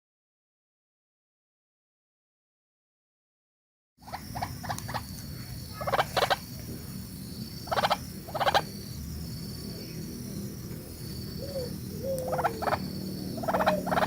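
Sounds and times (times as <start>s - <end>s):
bird giving harsh buzzy calls: 11.3s - 14.0s.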